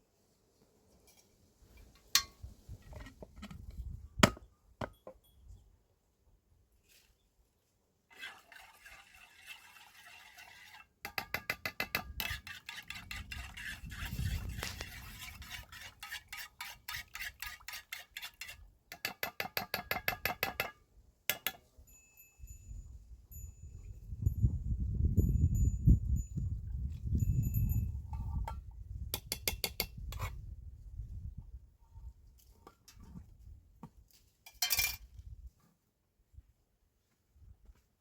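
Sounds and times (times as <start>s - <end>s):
metal utensil clinking on pot: 2.2s - 2.4s, 11.1s - 13.5s.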